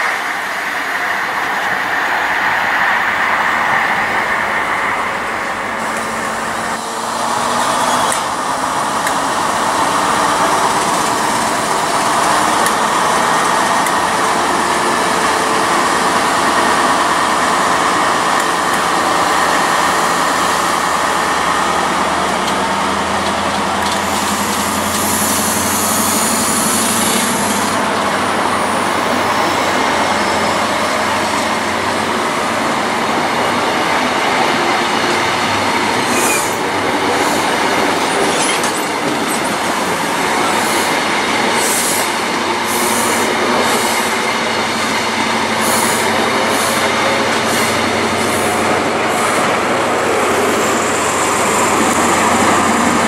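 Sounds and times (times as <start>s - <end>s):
train wheels rushing on rails: 0.0s - 53.0s
wheels clicking over rail joints: 22.2s - 25.4s.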